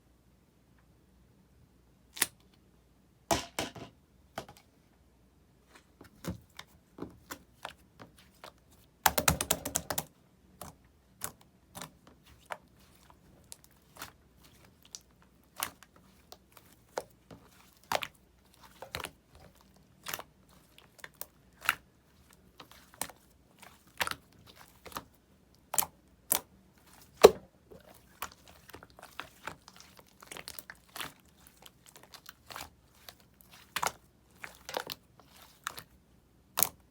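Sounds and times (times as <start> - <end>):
slime squishing with clicks and pops: 8.4 - 21.9, 22.6 - 35.9, 36.5 - 36.9.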